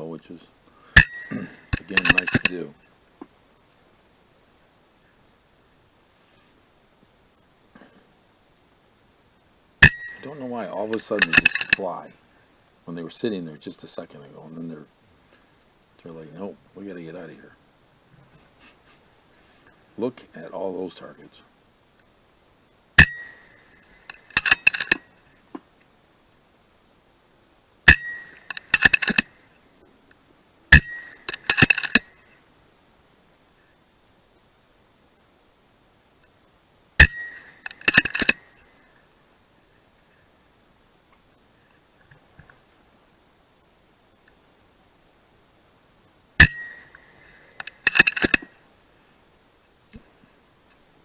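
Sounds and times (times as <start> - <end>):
metallic clicks: 1.0 - 2.6, 9.8 - 11.9, 23.0 - 25.0, 27.9 - 29.3, 30.7 - 32.2, 37.0 - 38.5, 46.4 - 48.5.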